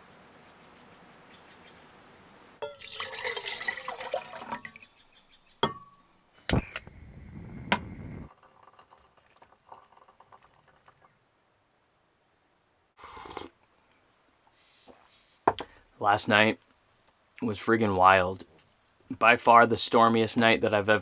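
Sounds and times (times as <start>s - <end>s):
water splashing and pouring: 2.6s - 5.2s.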